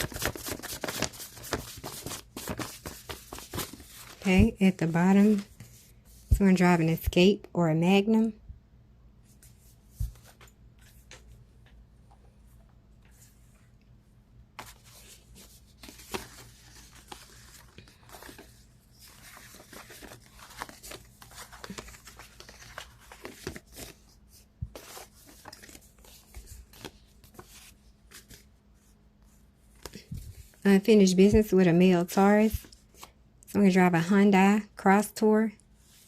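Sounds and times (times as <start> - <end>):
cards shuffling: 0.0 - 5.7, 14.6 - 24.1
papery rustling: 0.0 - 6.4, 14.6 - 28.5.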